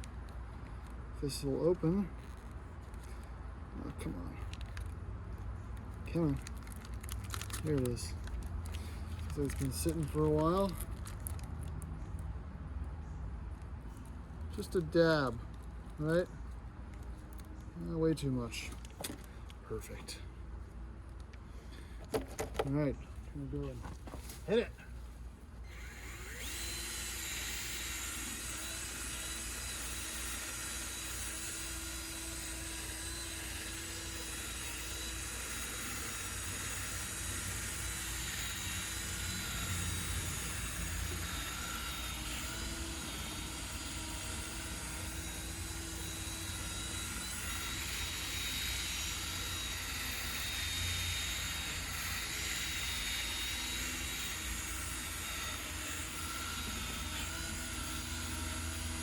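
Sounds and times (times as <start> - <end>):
electric drill motor whine: 25.6 - 59.0.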